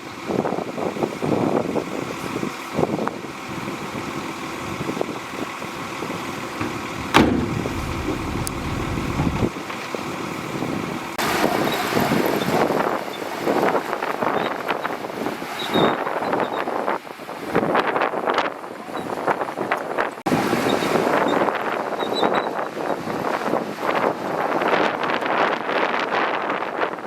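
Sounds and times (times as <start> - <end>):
bulldozer diesel engine running: 4.4 - 9.5
metal clanks: 6.6 - 9.5
sharp knock: 6.6 - 9.5.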